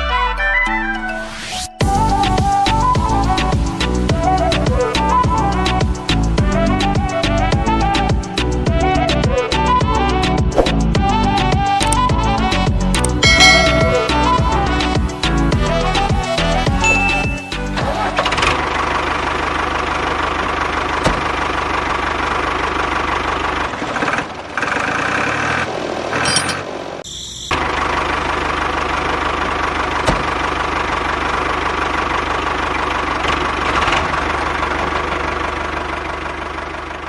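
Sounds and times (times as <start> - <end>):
tractor engine idling: 12.8 - 25.4, 26.2 - 37.0.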